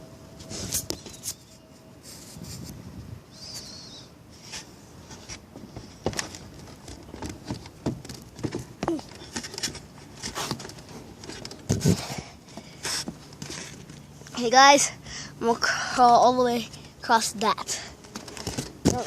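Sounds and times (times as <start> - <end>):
handling knocks and rustles: 4.5 - 14.3, 18.0 - 19.0.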